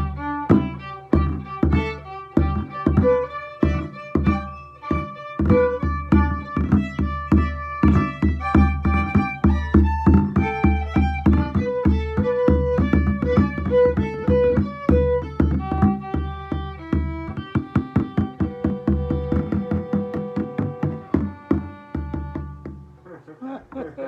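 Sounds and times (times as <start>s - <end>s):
frame drum beat: 0.0s - 23.0s
fiddle melody: 0.0s - 23.2s.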